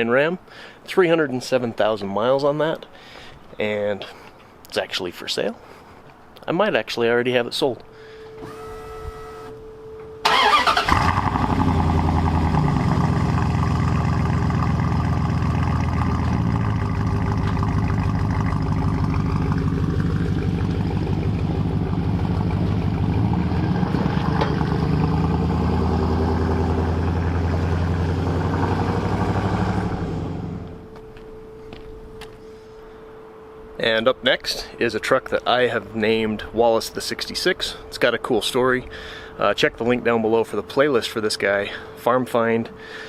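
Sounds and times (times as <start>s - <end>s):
engine cranking and starting: 10.2s - 13.6s
engine idling: 10.2s - 30.9s.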